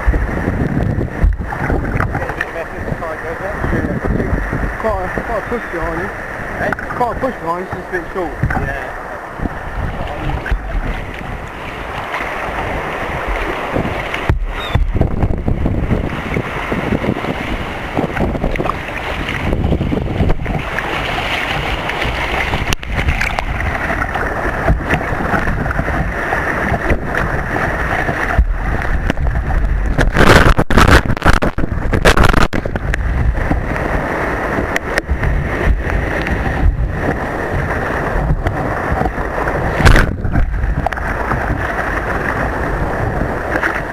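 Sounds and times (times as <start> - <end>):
surf rushing: 0.0 - 43.9
wind buffeting microphone: 0.0 - 43.9
sharp hits of water: 13.7 - 15.1, 28.0 - 33.0, 38.3 - 40.9.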